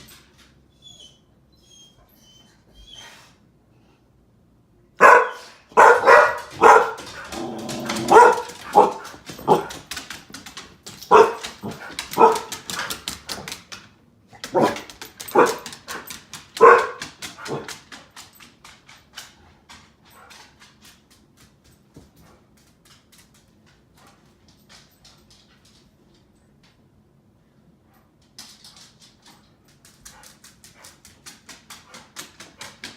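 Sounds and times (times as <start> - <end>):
dog barking: 5.0 - 9.8, 11.1 - 12.6, 14.5 - 16.0, 16.6 - 17.7.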